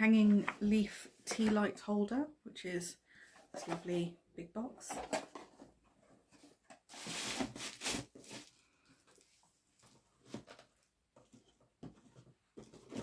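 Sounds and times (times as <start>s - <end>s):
cardboard rustling and scraping: 4.9s - 8.6s, 9.2s - 13.0s.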